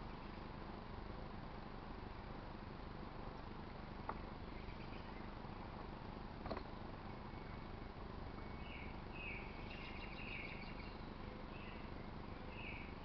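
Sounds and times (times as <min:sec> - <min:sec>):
outdoor background hiss: 0:00.0 - 0:13.0
birds chirping: 0:03.3 - 0:06.0, 0:06.6 - 0:13.0.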